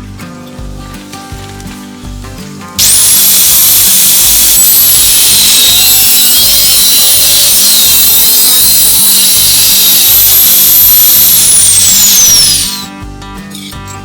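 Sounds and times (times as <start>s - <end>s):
angle grinder on metal: 2.8s - 12.9s.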